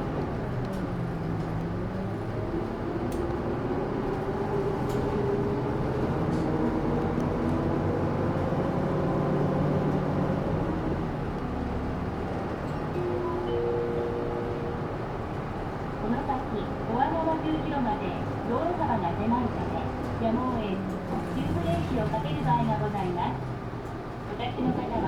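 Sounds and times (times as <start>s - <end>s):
bus engine accelerating: 0.0s - 25.0s
road noise: 0.0s - 25.0s.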